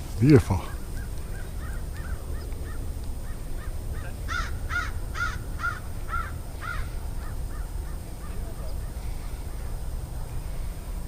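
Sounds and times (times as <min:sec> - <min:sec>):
birds calling: 0:00.0 - 0:11.0
steady low rumble: 0:00.0 - 0:11.0.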